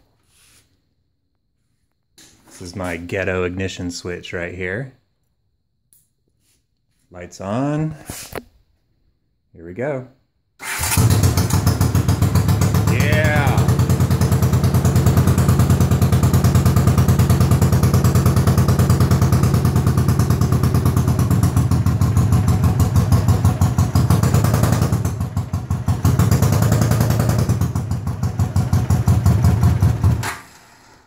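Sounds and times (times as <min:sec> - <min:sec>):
motorcycle engine running: 0:10.8 - 0:30.3.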